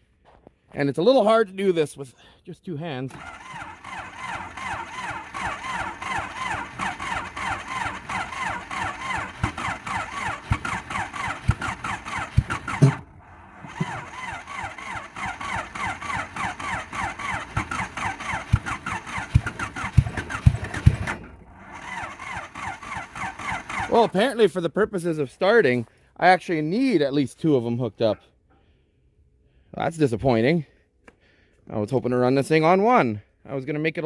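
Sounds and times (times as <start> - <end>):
engine cranked by starter: 3.1 - 24.3
low engine thumps: 10.4 - 14.1, 18.4 - 21.4.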